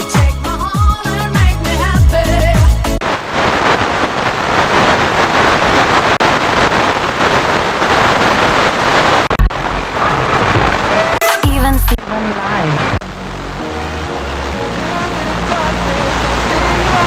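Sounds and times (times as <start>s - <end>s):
radio static hiss: 3.0s - 13.6s.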